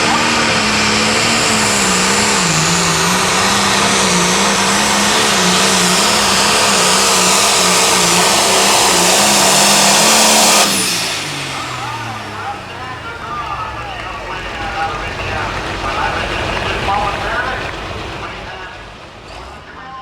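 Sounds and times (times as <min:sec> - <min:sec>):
diesel tractor engine at full throttle: 0:00.0 - 0:20.0.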